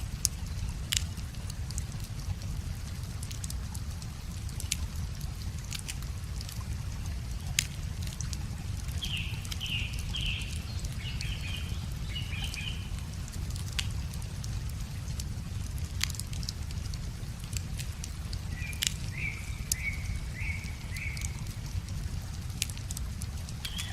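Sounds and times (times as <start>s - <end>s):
wood fire crackling: 0.0s - 23.9s
songbird singing: 8.6s - 13.2s, 18.4s - 21.8s, 23.6s - 23.9s.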